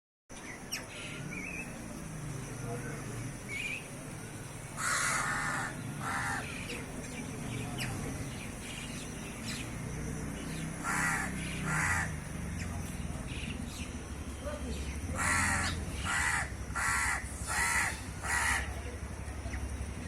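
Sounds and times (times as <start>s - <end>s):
bird harsh calls: 4.8s - 9.8s, 10.4s - 19.7s.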